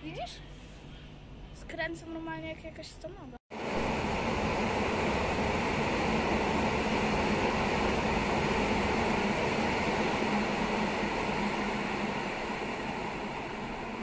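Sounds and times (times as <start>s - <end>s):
train rumbling away: 3.5s - 14.0s.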